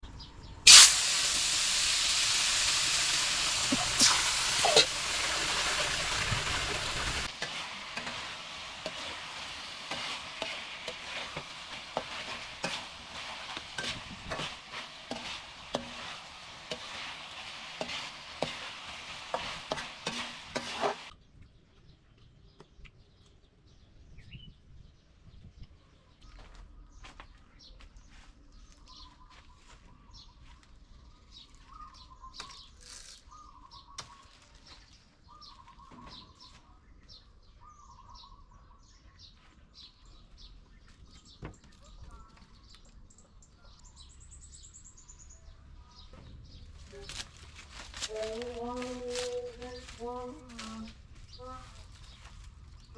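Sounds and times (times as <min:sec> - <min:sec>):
bird chirps: 0:00.0 - 0:00.7
food sizzling in hot oil: 0:00.6 - 0:21.1.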